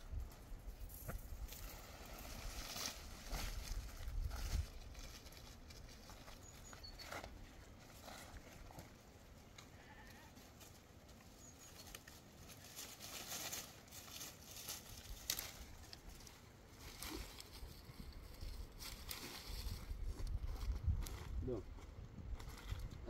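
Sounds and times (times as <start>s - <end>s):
faint goats or sheep bleating: 9.6s - 10.7s.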